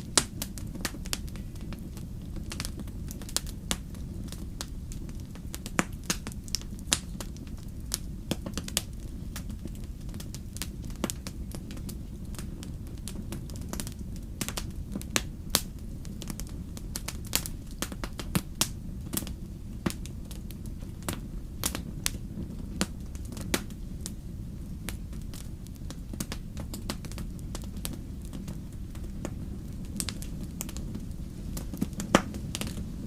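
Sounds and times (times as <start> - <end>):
fire crackling and popping: 0.0 - 33.0
low rumble of flames: 0.0 - 33.0.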